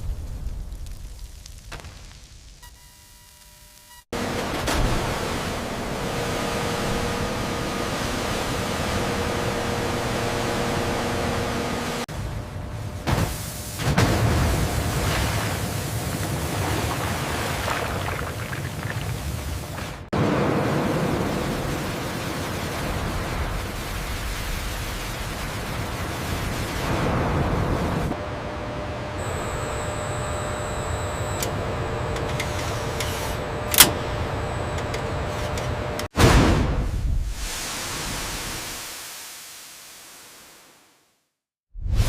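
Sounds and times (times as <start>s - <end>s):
faint steady hum: 28.2s - 36.1s.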